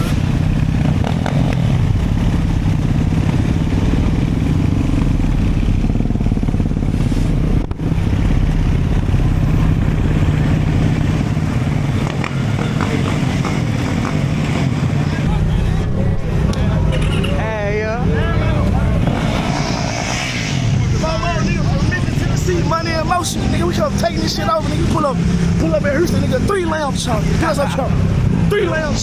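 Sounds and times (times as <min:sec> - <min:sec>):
dirt bike engine running: 0:00.0 - 0:19.7.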